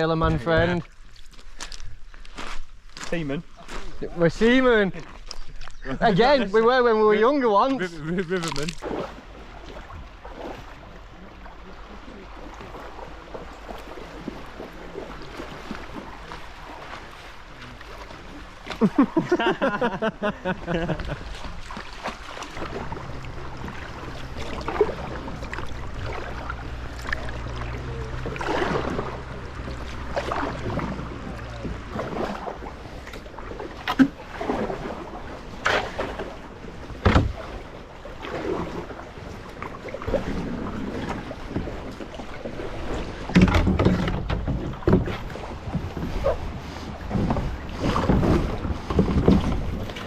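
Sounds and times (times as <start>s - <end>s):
paddle strokes splashing: 0.0s - 50.0s.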